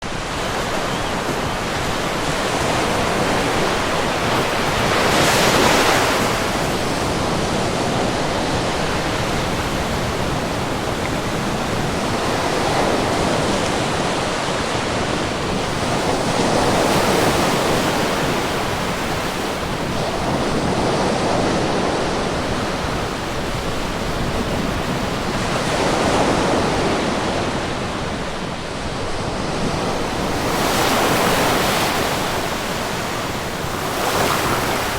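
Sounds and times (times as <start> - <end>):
sea waves breaking: 0.1 - 34.9.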